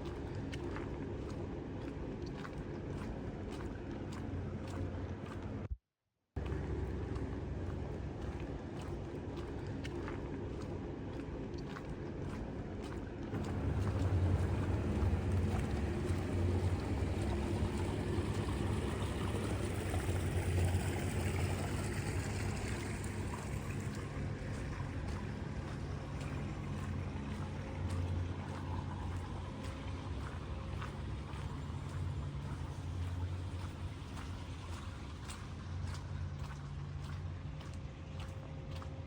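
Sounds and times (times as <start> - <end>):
vehicle engine running: 13.3 - 34.0.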